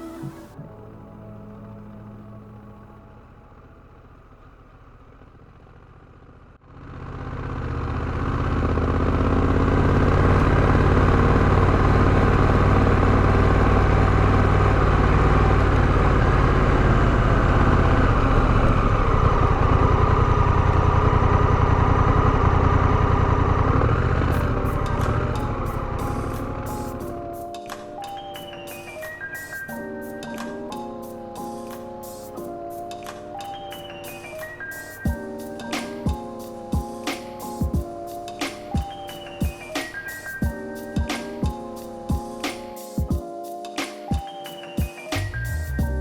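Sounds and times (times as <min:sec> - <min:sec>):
motorcycle engine running: 0:00.6 - 0:28.0, 0:45.3 - 0:46.0.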